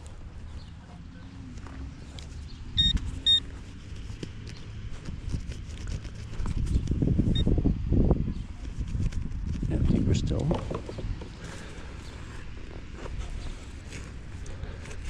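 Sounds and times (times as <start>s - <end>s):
digging in soil: 0.0s - 7.4s, 8.6s - 15.0s
metal detector beeps: 2.8s - 3.5s.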